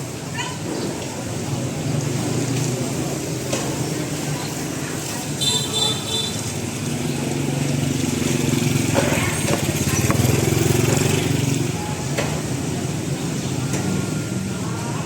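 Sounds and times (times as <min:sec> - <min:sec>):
faint voices: 0:00.1 - 0:15.0
small motorbike engine running: 0:08.0 - 0:11.8.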